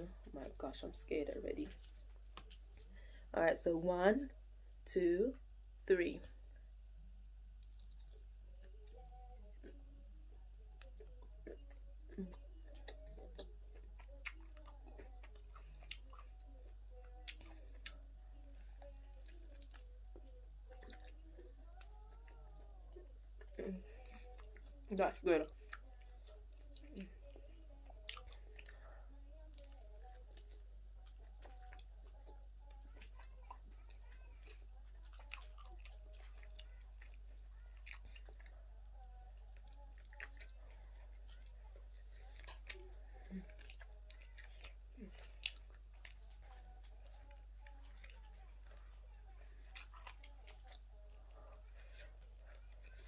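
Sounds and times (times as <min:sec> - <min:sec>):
low electrical hum: 0:00.0 - 0:53.0
person chewing and biting: 0:07.6 - 0:09.0, 0:10.8 - 0:18.0, 0:29.4 - 0:53.0.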